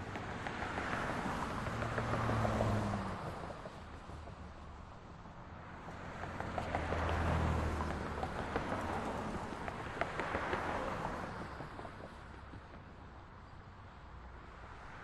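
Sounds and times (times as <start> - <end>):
vehicle passing: 0.0 - 3.5, 6.1 - 12.2
steady traffic hum: 0.0 - 15.0.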